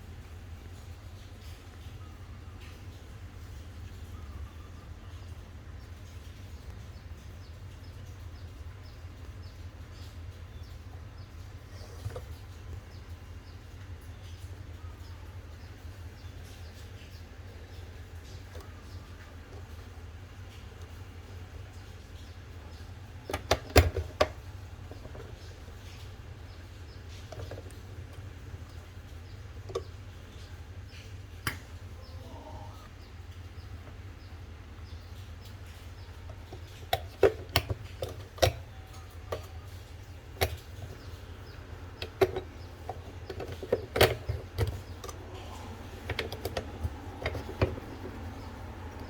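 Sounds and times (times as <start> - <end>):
low steady rumble: 0.0 - 49.0
bird chirping: 0.6 - 49.0
sharp clicks and knocks: 21.8 - 31.8, 35.4 - 49.0.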